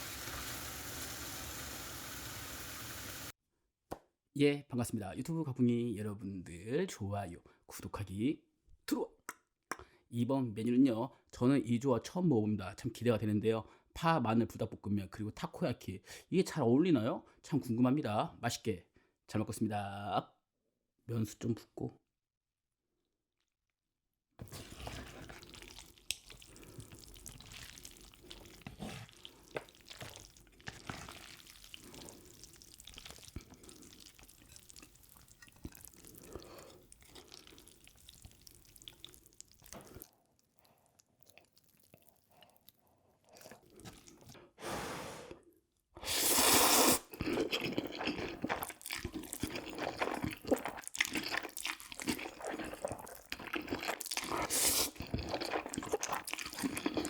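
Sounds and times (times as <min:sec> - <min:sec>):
noodles squishing: 0:24.5 - 0:44.4, 0:47.2 - 0:57.0.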